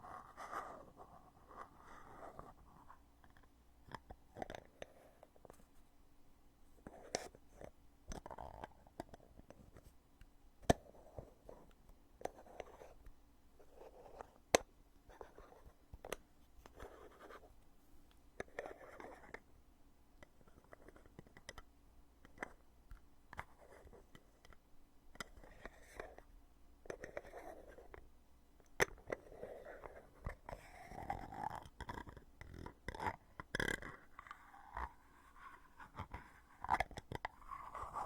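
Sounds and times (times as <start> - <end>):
container lid rubbing and scraping: 34.4 - 38.0.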